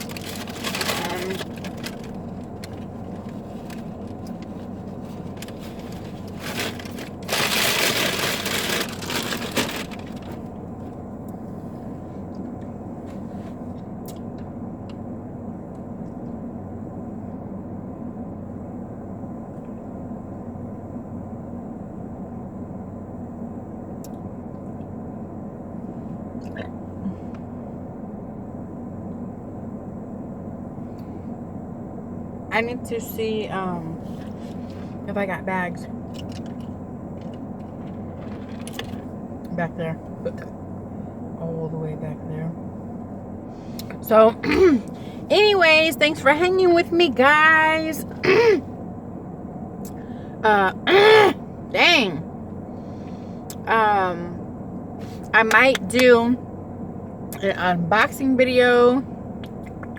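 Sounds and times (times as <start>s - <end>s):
food packaging crinkling: 0.0s - 4.5s, 5.2s - 10.3s
steady low hum: 0.0s - 59.9s.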